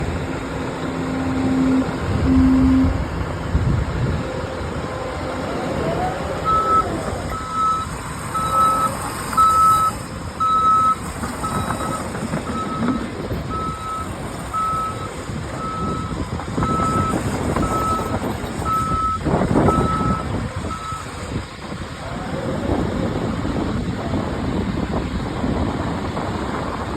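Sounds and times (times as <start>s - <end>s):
heavy machinery engine running: 0.0s - 26.9s
low horn honks: 0.6s - 3.5s
reversing alarm beeping: 0.7s - 3.1s, 5.1s - 21.1s.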